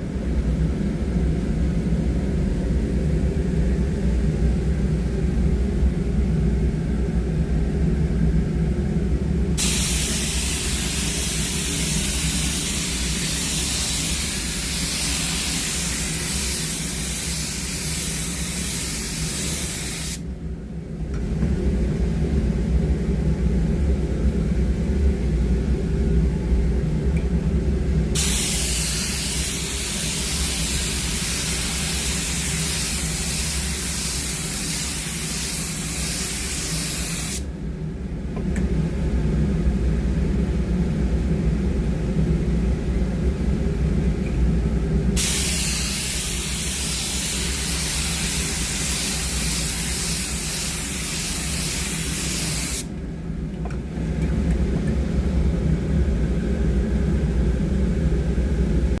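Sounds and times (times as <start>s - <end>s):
low machine hum: 0.0s - 59.0s
paint spray gun hissing: 9.6s - 20.2s, 28.2s - 37.4s, 45.2s - 52.9s.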